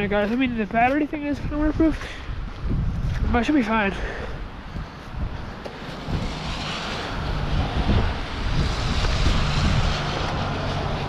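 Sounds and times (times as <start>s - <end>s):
wind buffeting microphone: 0.0s - 11.0s
rushing hiss: 5.6s - 10.8s.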